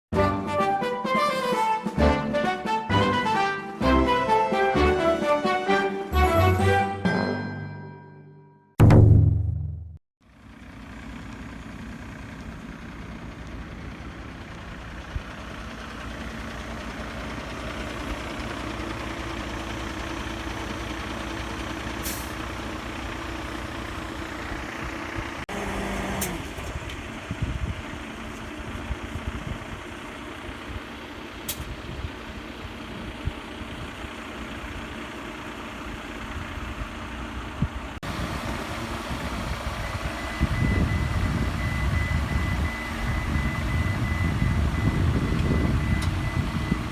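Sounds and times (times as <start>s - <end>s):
engine running steadily: 10.2s - 46.9s.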